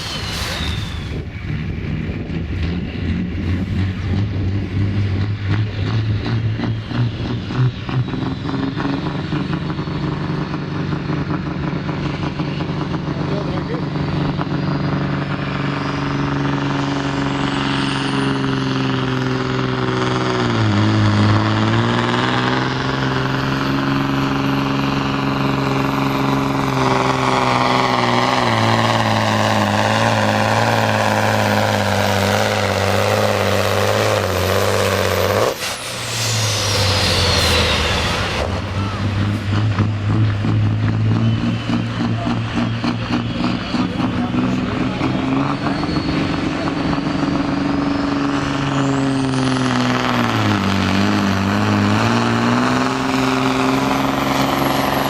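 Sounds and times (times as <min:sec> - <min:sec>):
high whistle: 0:00.0 - 0:01.3, 0:40.9 - 0:47.3
diesel truck engine under load: 0:00.0 - 0:55.0
falling whine: 0:00.0 - 0:55.0
air hiss burst: 0:35.6 - 0:39.5.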